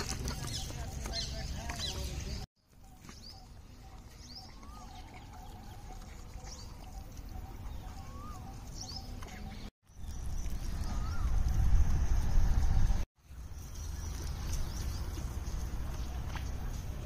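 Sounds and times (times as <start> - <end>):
small birds chirping: 0.0 - 17.0
bird whistles: 7.8 - 9.1.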